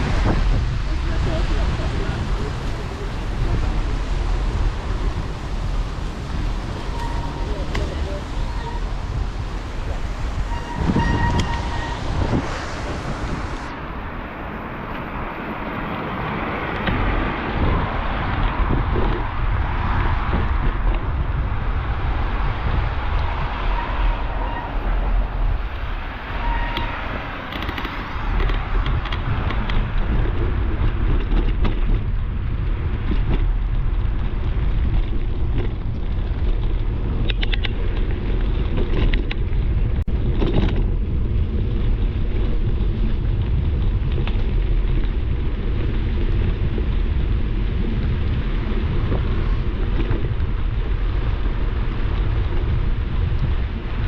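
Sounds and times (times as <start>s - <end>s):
tyres hissing on wet pavement: 0.0s - 18.2s
wind buffeting microphone: 0.0s - 54.0s.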